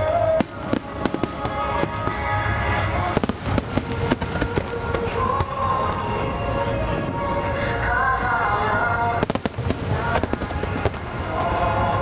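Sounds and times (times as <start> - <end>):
fireworks bursting: 0.0 - 6.3, 9.1 - 12.0
song with female singer: 0.0 - 12.0.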